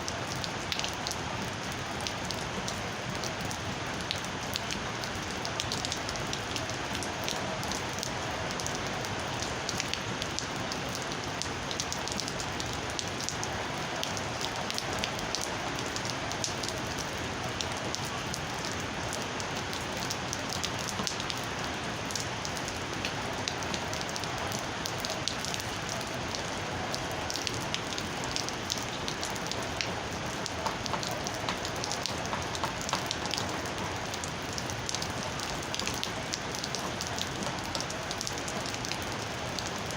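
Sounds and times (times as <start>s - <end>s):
steady rain falling: 0.0s - 39.9s
raindrops ticking on a surface: 0.1s - 39.9s.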